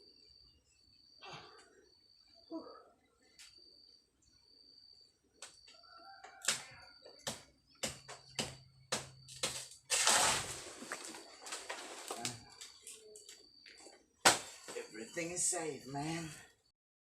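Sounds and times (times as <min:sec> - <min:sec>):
sharp knocks: 0:07.2 - 0:09.6.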